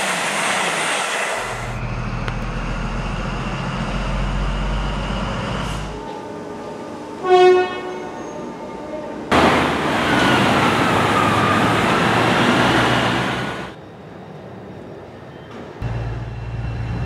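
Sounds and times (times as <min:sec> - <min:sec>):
loud train running noise with whine: 0:00.0 - 0:17.0
short train horn toot: 0:07.2 - 0:08.6.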